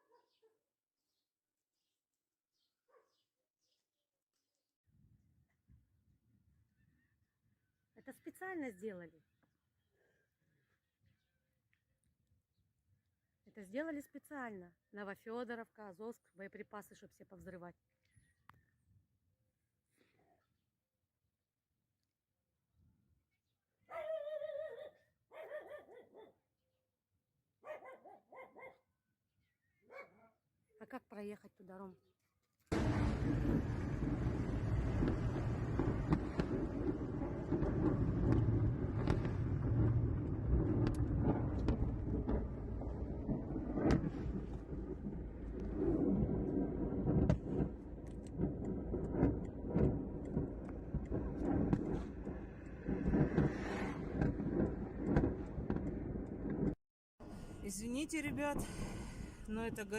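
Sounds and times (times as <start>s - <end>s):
dog whining and yelping: 23.9s - 26.3s, 27.6s - 28.7s
munitions exploding pops: 32.7s - 56.8s
low rumble: 32.7s - 59.9s.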